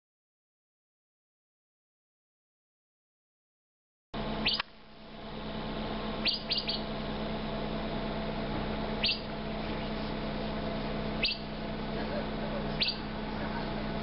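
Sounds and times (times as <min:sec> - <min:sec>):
bird chirping: 0:04.4 - 0:04.7, 0:06.2 - 0:06.9, 0:09.0 - 0:10.2, 0:10.8 - 0:11.6, 0:12.6 - 0:13.8.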